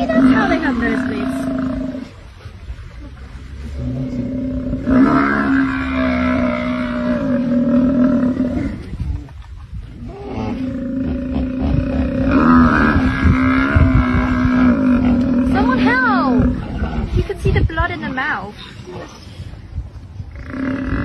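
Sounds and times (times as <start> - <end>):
rough animal noise: 3.4 - 17.6, 20.2 - 21.0.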